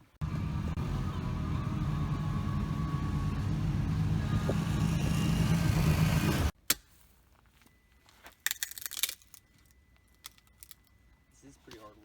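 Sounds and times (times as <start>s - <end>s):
vehicle engine rumbling: 0.0s - 6.6s.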